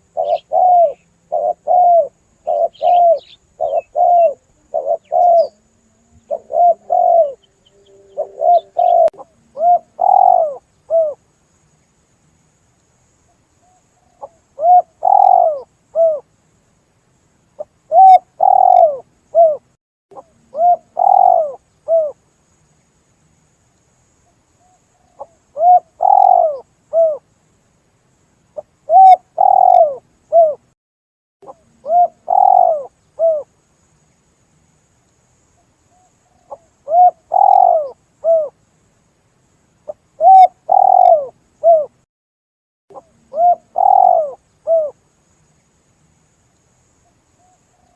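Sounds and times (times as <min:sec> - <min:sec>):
dove cooing: 0:00.0 - 0:11.2, 0:14.1 - 0:16.2, 0:17.9 - 0:22.2, 0:24.6 - 0:27.2, 0:28.6 - 0:30.7, 0:31.4 - 0:33.5, 0:36.2 - 0:38.6, 0:39.9 - 0:42.0, 0:42.9 - 0:45.0.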